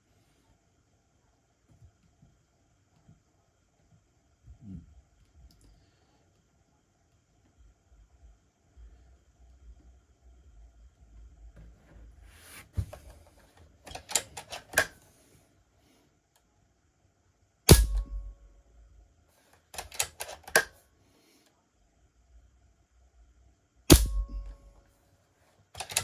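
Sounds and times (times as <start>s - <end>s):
air rifle cocking lever clicks: 13.9s - 15.0s, 17.7s - 18.3s, 19.8s - 20.8s, 23.9s - 24.6s, 25.8s - 26.0s
air rifle shot with ringing tail: 17.7s - 18.5s, 23.9s - 24.7s.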